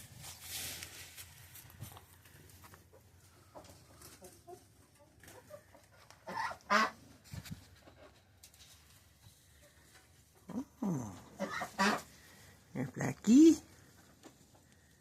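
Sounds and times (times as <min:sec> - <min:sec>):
chickens clucking: 0:02.7 - 0:08.5, 0:09.4 - 0:12.4.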